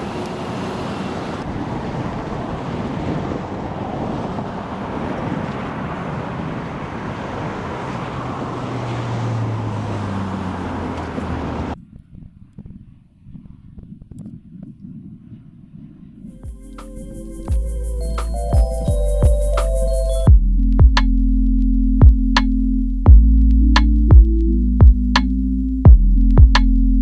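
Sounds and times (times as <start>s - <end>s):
passing vehicle engine: 0.0s - 11.8s
roadside traffic noise: 0.0s - 11.8s, 16.3s - 20.3s
wind buffeting microphone: 0.0s - 16.4s.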